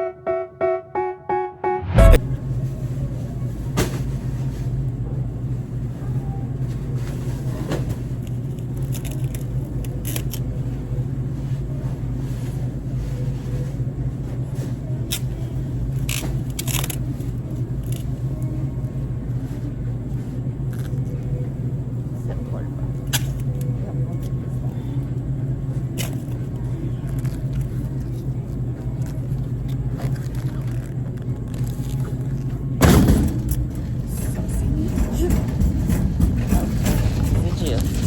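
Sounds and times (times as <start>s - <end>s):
car driving rumble: 20.5s - 38.0s.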